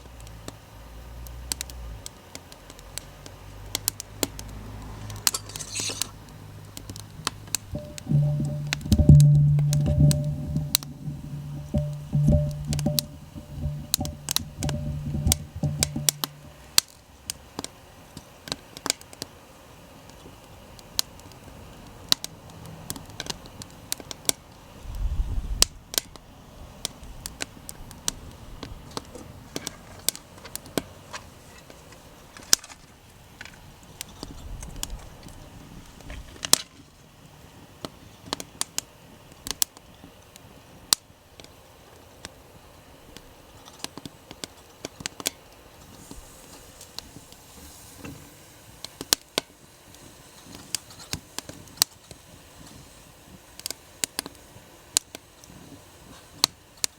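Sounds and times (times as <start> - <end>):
low rumble: 7.8 - 16.6
music: 7.8 - 16.6.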